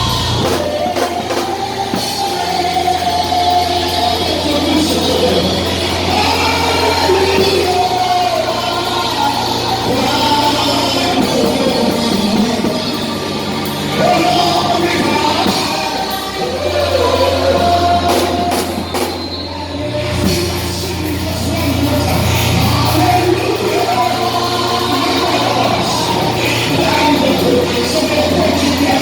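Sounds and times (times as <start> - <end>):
church singing: 0.0 - 29.0
drums: 0.0 - 29.0
sustained bass line: 0.0 - 29.0.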